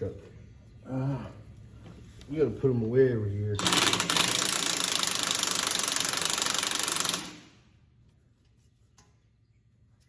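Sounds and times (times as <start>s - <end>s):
power tool rattling hammer: 3.6s - 7.6s.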